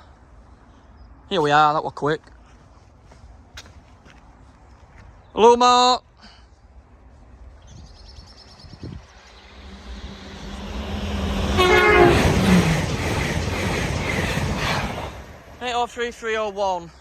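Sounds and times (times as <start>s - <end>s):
train rushing past: 8.4s - 16.7s
train horn blast: 9.3s - 13.2s.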